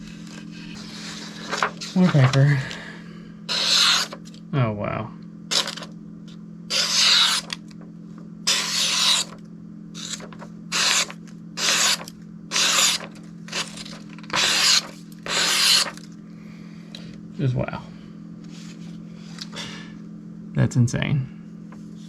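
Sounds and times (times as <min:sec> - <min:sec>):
steady low hum: 0:00.0 - 0:22.0
knife slicing paper: 0:03.5 - 0:04.2, 0:05.5 - 0:05.9, 0:06.7 - 0:07.6, 0:08.5 - 0:09.4, 0:10.0 - 0:16.1.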